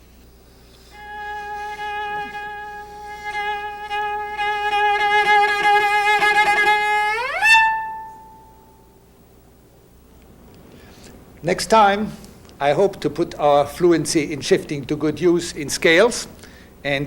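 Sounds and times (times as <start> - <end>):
cello bowed note sliding upward: 0.9 - 8.4
cello harmonic ringing: 0.9 - 9.0.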